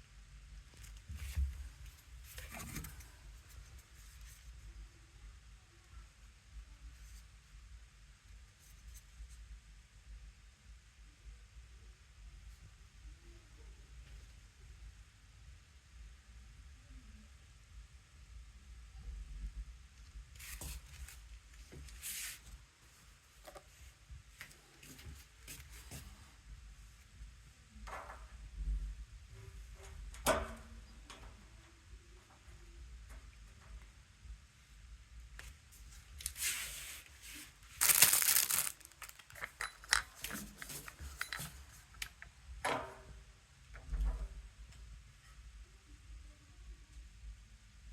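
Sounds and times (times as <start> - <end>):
rustling scrape: 21.9 - 22.5, 36.2 - 41.8
loud rip: 37.8 - 39.2.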